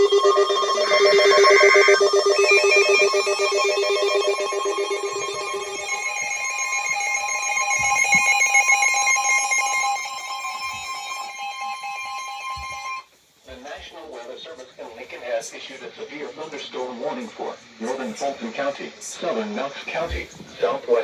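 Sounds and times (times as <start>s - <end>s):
electronic alert trill: 0.0s - 13.0s.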